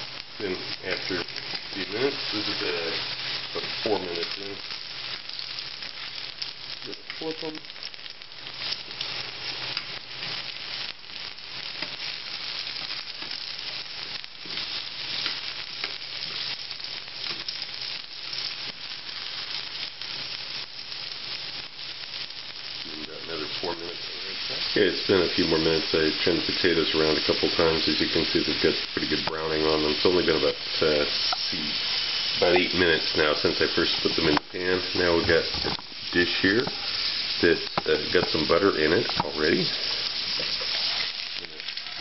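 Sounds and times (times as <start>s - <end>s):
potatoes frying in fat: 0.0s - 42.0s
metal tongs scraping a pan: 39.0s - 42.0s.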